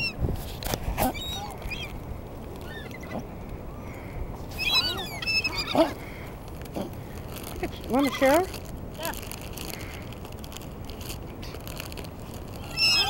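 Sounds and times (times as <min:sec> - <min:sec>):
seagulls calling: 0:01.0 - 0:02.0, 0:02.6 - 0:06.4, 0:12.6 - 0:13.0.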